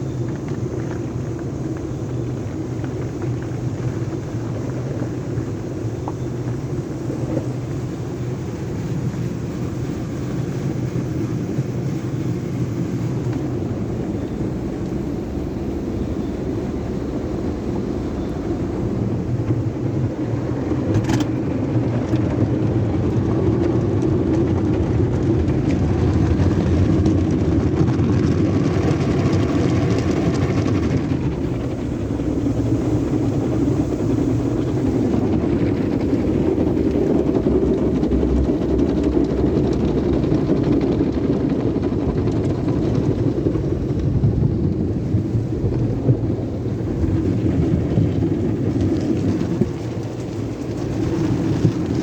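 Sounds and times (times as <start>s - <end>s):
car wash machinery rumble: 0.0s - 52.0s
spraying hiss: 31.4s - 36.5s.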